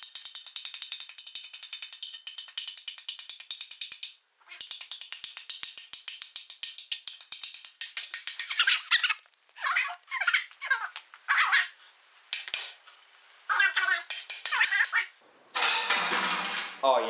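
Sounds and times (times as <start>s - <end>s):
fast clicking beat: 0.0s - 9.3s, 12.3s - 12.8s, 13.6s - 15.0s.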